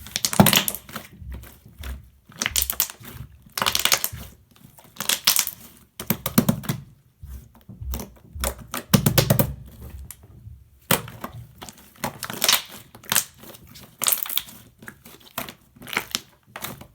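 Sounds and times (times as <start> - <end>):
slime crackling and squelching: 0.0 - 6.8, 10.8 - 16.9.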